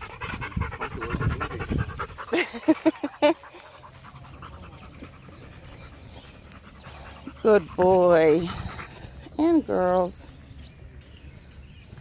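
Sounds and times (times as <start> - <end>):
dog panting: 0.0 - 9.4.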